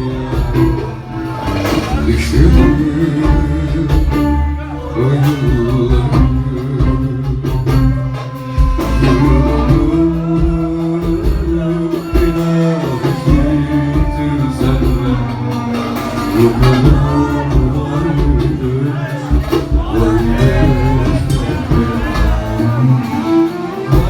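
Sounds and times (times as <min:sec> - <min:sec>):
live band playing pop ballad: 0:00.0 - 0:24.0.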